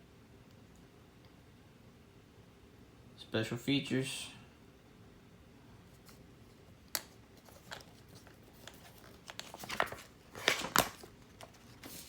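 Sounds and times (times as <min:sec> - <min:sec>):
paper rustling: 0:06.9 - 0:12.0.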